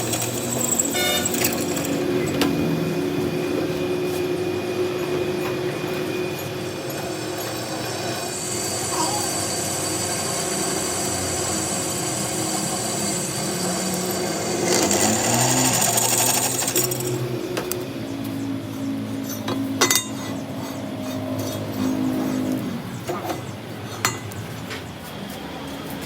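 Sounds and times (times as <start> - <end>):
workshop machine humming: 0.0 - 26.0.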